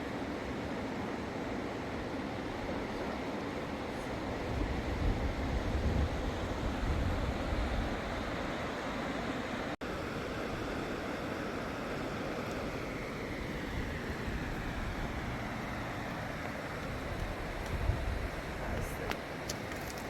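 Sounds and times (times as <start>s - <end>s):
rushing floodwater: 0.0s - 20.0s
wind buffeting microphone: 4.3s - 8.5s, 13.5s - 19.2s.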